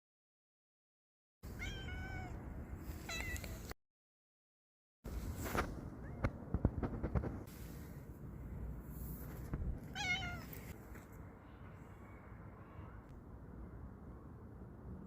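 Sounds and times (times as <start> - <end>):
cat meowing: 1.5 - 2.4, 3.1 - 3.6, 9.9 - 10.7.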